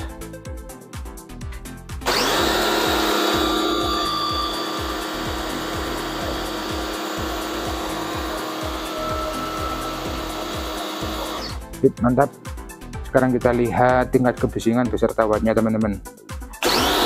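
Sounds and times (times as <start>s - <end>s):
pressure washer motor humming: 2.0s - 11.6s, 16.6s - 17.0s.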